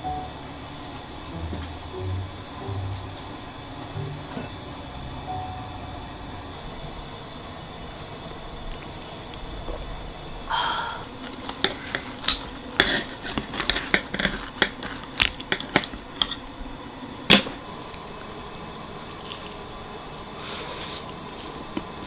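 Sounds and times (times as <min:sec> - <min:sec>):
dishes and utensils clinking: 0:04.0 - 0:04.8, 0:11.2 - 0:16.6.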